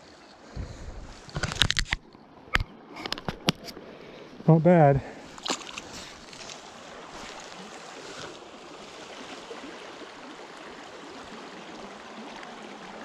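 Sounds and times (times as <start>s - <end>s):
river water rushing over rocks: 5.3s - 13.0s.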